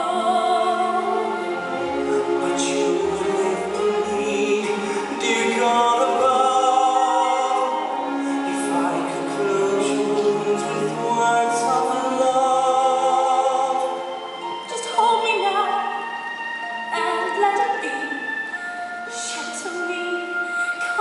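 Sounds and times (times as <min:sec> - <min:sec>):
orchestral accompaniment: 0:00.0 - 0:21.0.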